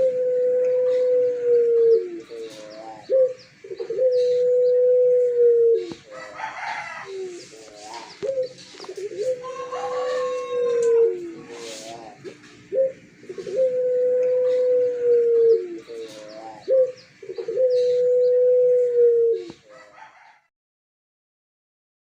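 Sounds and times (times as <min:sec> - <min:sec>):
dove cooing: 0:00.0 - 0:20.5
short stepped dove calls: 0:01.8 - 0:19.6.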